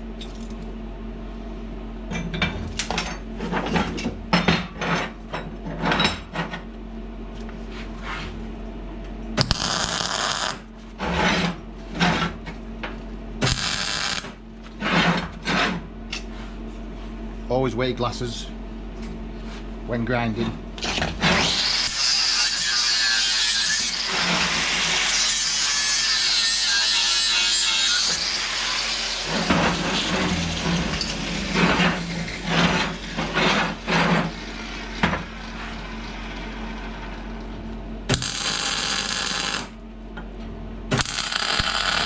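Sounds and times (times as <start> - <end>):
angle grinder grinding steel: 13.5 - 14.3, 21.4 - 34.4, 38.1 - 39.7, 41.0 - 42.0.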